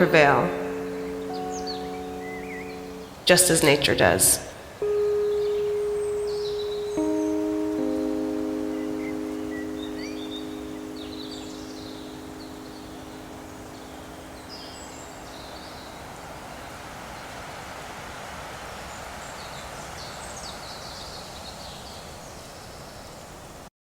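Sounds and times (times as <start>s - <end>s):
birds chirping: 0.0s - 16.9s.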